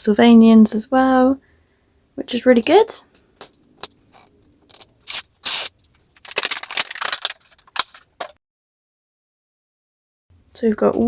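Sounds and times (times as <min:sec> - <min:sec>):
plastic wrap crinkling: 0:04.7 - 0:08.4.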